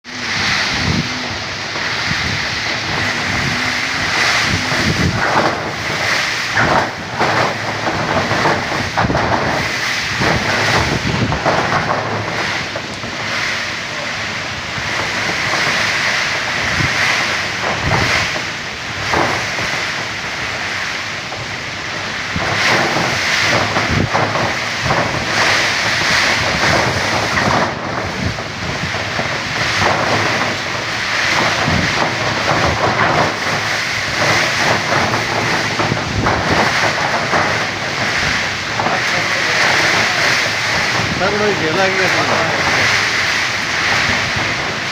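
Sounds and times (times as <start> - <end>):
heavy rain: 0.0 - 44.9
wind buffeting microphone: 0.0 - 44.9.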